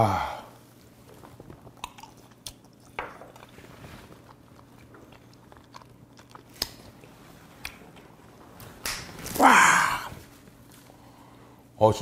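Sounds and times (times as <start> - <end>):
wet chewing mouth clicks: 1.2 - 8.0.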